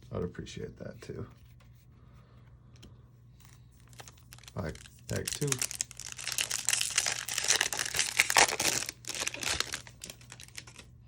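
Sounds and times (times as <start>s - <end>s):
wrapper tearing and crinkling: 3.8s - 10.9s.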